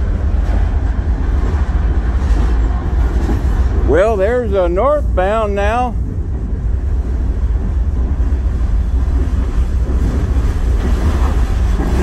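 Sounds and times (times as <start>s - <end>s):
freight train rumbling past: 0.0s - 12.0s
wind on microphone: 6.0s - 12.0s.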